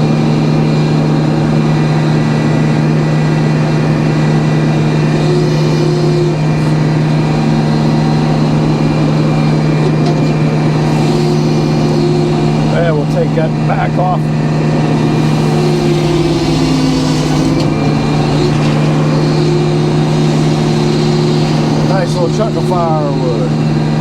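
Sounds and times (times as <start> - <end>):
sawmill machine hum: 0.0 - 24.0.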